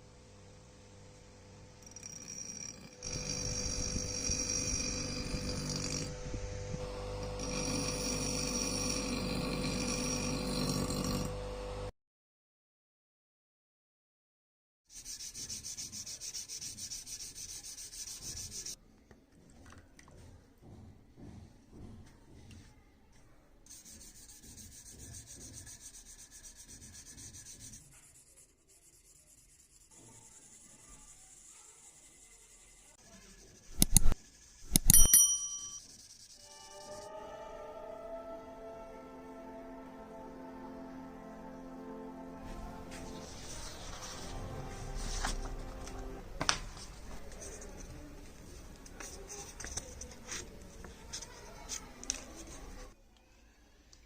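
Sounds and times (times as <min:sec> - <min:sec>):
power tool motor grinding: 0:02.1 - 0:11.4
sandpaper rubbing: 0:14.9 - 0:18.8, 0:23.7 - 0:34.7, 0:35.8 - 0:36.8, 0:42.8 - 0:45.8.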